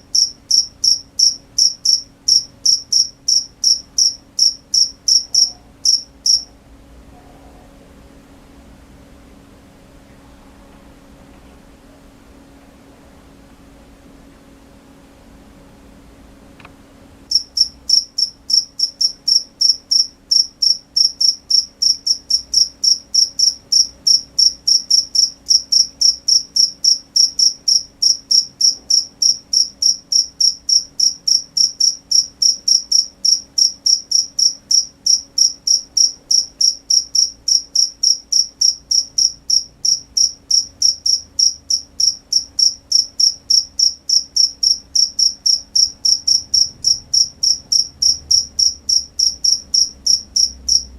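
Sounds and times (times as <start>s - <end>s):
cricket chirping: 0.0s - 6.5s, 17.3s - 50.9s.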